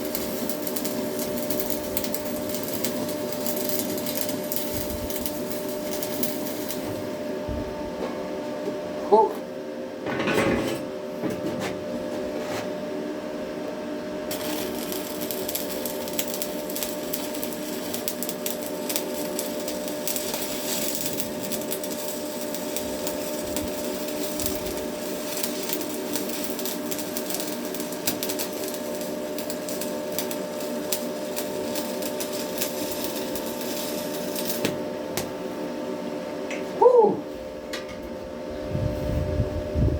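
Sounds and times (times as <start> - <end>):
welding arc crackling: 0.0 - 7.6, 14.3 - 35.6
steady hum: 0.0 - 39.9.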